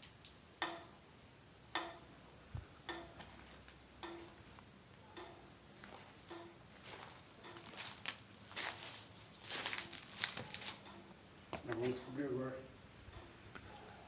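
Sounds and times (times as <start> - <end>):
faint ticking with low tone: 0.6 - 1.0, 1.7 - 2.1, 2.8 - 5.6.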